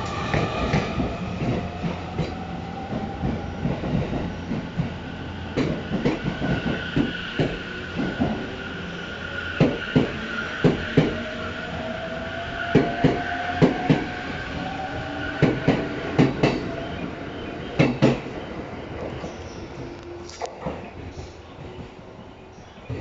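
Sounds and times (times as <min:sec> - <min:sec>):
train whine rising in pitch: 0:00.0 - 0:18.4.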